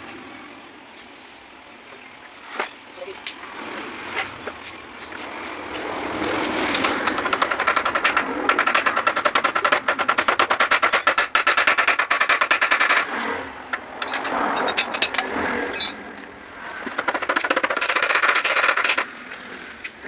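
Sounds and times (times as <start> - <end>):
machine running with rapid pulse: 6.7 - 13.1.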